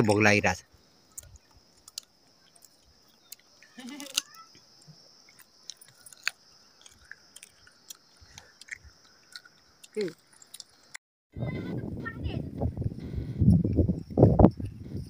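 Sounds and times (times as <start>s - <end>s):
high-pitched insect drone: 0.0s - 10.8s
child chewing fruit: 1.1s - 11.0s.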